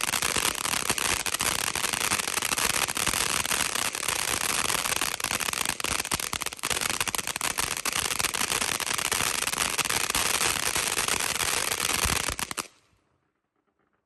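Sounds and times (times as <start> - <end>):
firework fountain crackling: 0.0 - 12.8.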